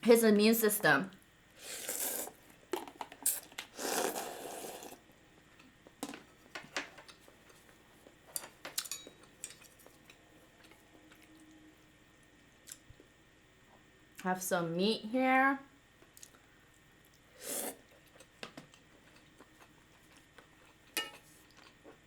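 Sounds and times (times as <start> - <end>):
noodle slurping: 1.6 - 2.4, 3.2 - 5.0, 17.4 - 17.9.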